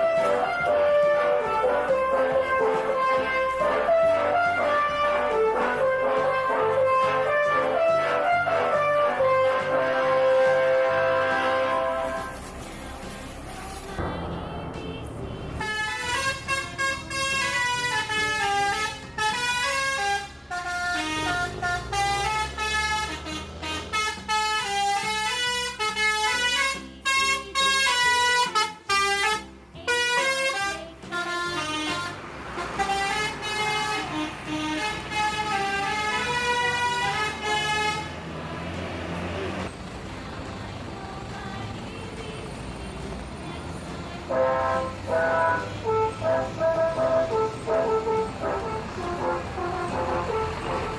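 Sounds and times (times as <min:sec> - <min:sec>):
musical air horn melody: 0:00.0 - 0:12.6, 0:15.6 - 0:38.3, 0:44.2 - 0:50.9
vehicle low rumble: 0:00.0 - 0:19.3, 0:32.2 - 0:44.3, 0:45.0 - 0:50.9.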